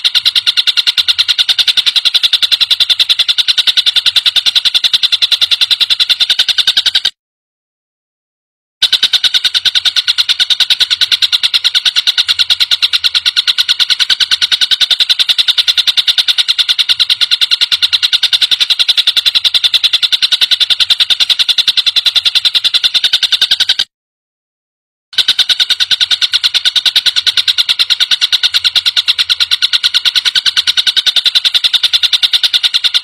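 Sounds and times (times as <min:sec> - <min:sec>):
bird rattling trill: 0:00.0 - 0:07.1, 0:08.8 - 0:23.9, 0:25.2 - 0:33.0.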